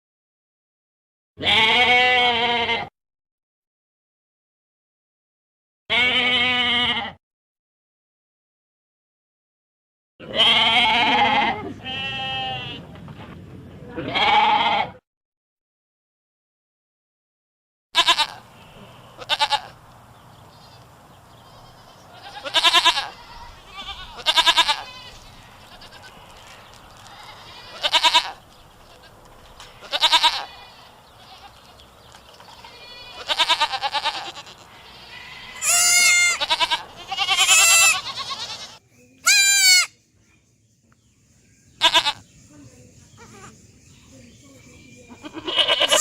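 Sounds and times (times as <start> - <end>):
goats bleating: 1.4 - 2.9, 5.9 - 7.2, 10.2 - 12.8, 14.0 - 15.0, 18.0 - 18.5, 19.2 - 19.8, 21.4 - 31.8, 32.4 - 39.9, 41.8 - 42.2, 45.2 - 46.0.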